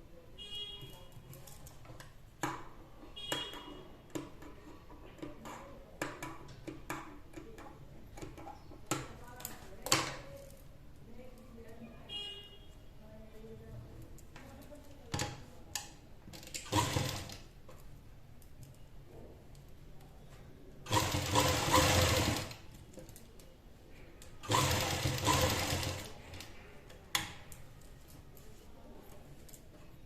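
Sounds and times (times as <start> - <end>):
sewing machine stitching: 16.4 - 17.5, 20.9 - 22.7, 24.4 - 26.5.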